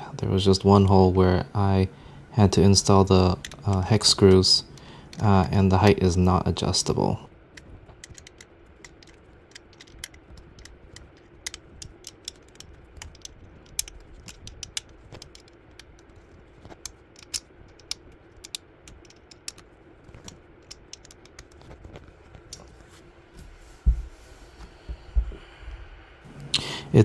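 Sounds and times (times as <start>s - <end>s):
hex key clicking on screw: 2.2s - 6.0s, 7.6s - 22.6s.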